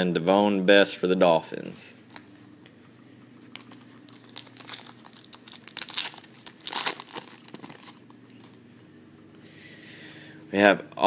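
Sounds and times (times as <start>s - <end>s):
plastic wrapper tearing and crinkling: 3.5s - 8.6s.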